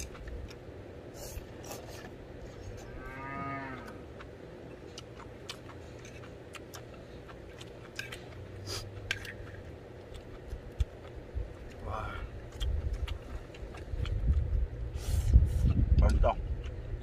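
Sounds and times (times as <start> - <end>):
distant cow mooing: 2.7 - 4.1.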